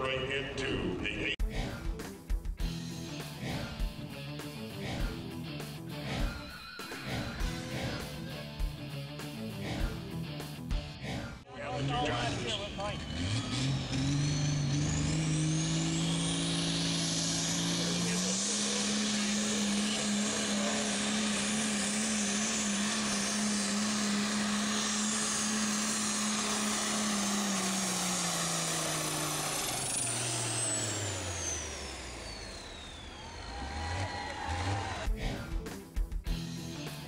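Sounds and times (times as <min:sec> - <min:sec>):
tractor engine at full throttle: 0:11.5 - 0:35.2.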